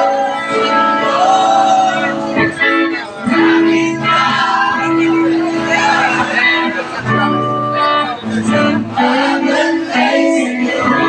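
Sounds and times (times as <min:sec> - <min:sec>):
live band playing: 0:00.0 - 0:10.1.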